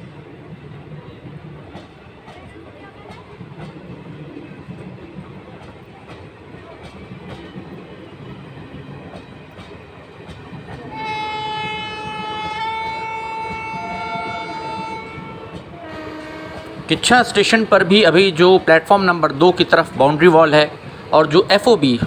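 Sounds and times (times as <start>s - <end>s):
train wheels clicking on rails: 0.0s - 22.0s
train horn blast: 10.9s - 17.1s.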